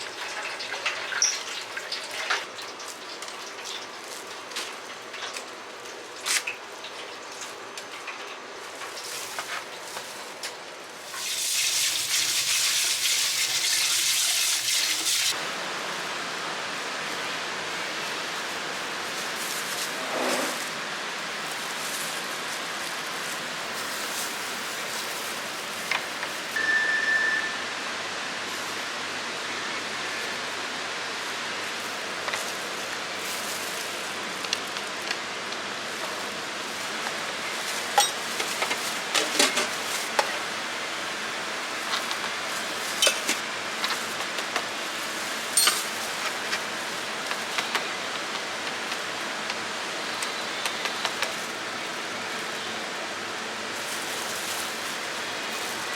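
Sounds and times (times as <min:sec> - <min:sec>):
short beep: 0:26.6 - 0:27.7.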